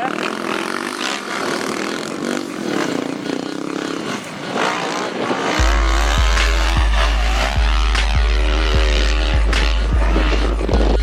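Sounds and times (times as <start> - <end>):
dirt bike engine revving: 0.0 - 11.0
deep bass music: 5.6 - 11.0.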